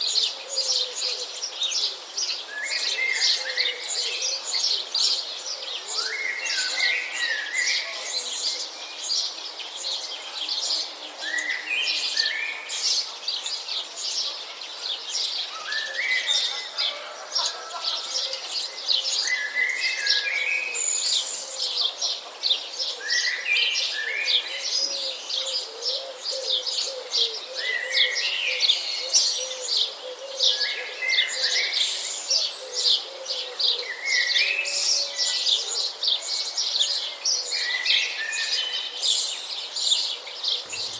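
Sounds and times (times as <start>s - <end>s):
small birds chirping: 17.4s - 40.9s.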